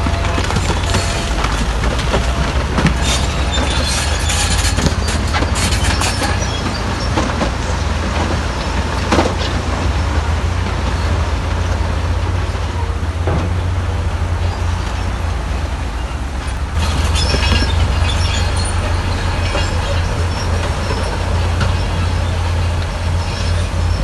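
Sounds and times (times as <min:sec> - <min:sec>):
bulldozer engine rumble: 0:00.0 - 0:24.0
steel tracks clanking and squealing: 0:00.0 - 0:24.0.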